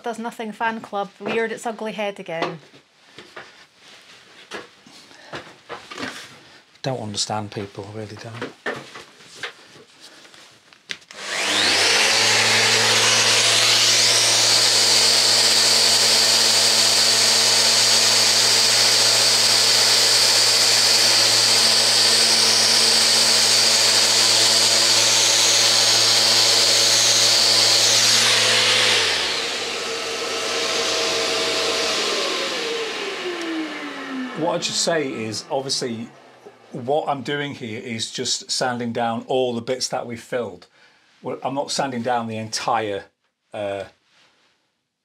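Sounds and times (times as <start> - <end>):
electric sander whining: 11.1 - 36.8.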